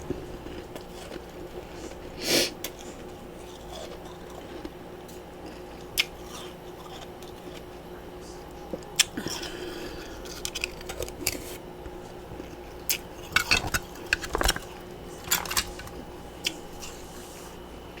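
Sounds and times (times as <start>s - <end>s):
faint steady hum: 0.0s - 18.0s
ice chunks crunching and clicking: 10.2s - 11.5s, 12.4s - 16.0s.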